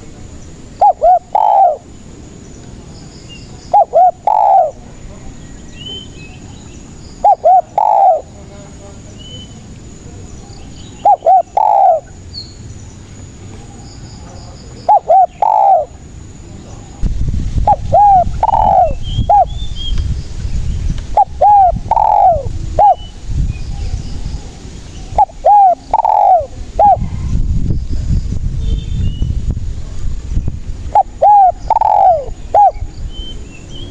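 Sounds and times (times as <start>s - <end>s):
low rumbling noise: 0.0s - 33.9s
dove cooing: 0.8s - 1.9s, 3.7s - 4.8s, 7.2s - 8.3s, 11.0s - 12.2s, 14.8s - 16.0s, 17.6s - 19.6s, 21.1s - 23.2s, 25.0s - 27.3s, 30.9s - 32.9s
faint high bird chirps: 10.3s - 15.9s, 17.7s - 29.4s.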